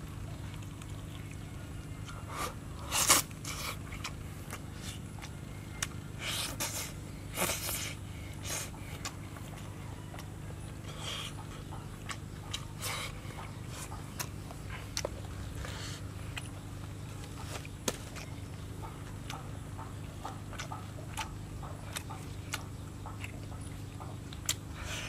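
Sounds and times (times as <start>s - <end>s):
low background hum: 0.0s - 25.0s
wet chewing and lip-smacking: 0.0s - 25.0s.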